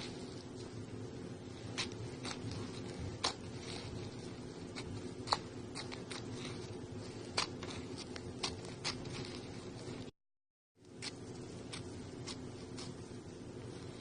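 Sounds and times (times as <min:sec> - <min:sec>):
steady low hum: 0:00.0 - 0:10.1, 0:10.8 - 0:14.0.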